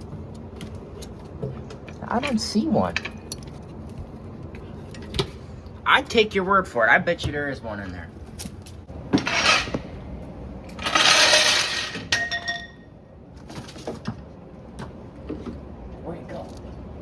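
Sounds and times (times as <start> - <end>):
hard objects crashing: 10.8 - 12.8
metallic ringing: 10.9 - 12.9.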